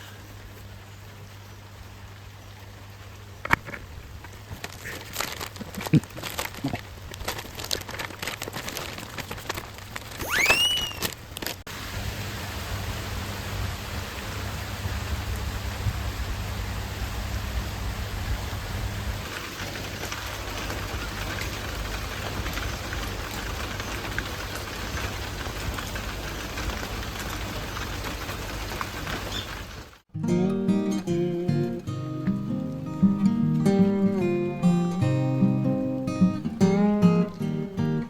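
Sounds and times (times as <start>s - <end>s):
rain-like hiss: 0.0s - 38.0s
brief rising whistle: 10.2s - 11.1s.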